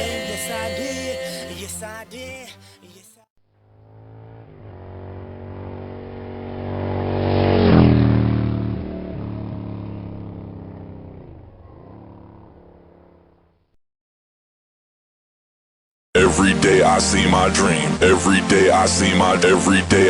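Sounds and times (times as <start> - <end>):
motocross bike engine passing: 3.5 - 13.7.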